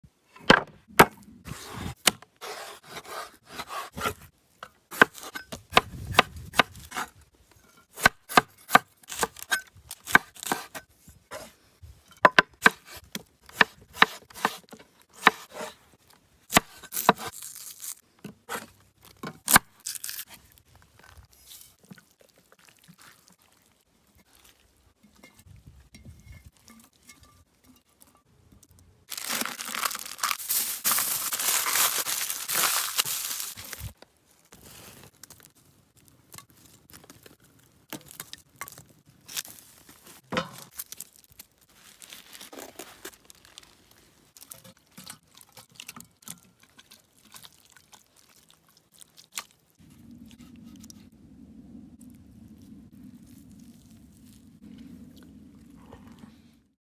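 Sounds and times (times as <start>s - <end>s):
faint handling sounds: 26.2s - 37.4s.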